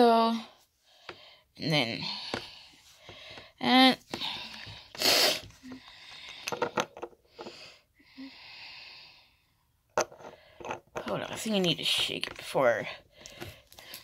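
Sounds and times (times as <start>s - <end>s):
breathy sniffing: 4.5s - 6.3s.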